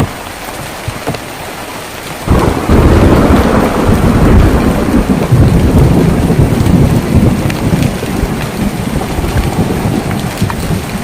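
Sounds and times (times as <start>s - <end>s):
rain on a tin roof: 0.0s - 11.0s
thunder rumbling: 2.2s - 11.0s.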